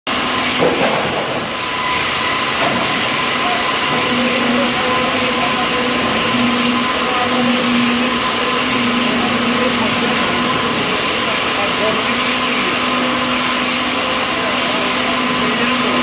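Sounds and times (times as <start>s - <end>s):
sawmill machinery din: 0.1s - 16.0s.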